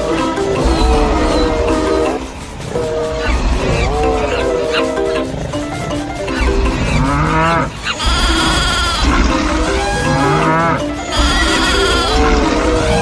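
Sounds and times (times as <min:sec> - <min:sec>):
background music: 0:00.0 - 0:13.0
cattle mooing: 0:02.8 - 0:05.9, 0:06.7 - 0:13.0.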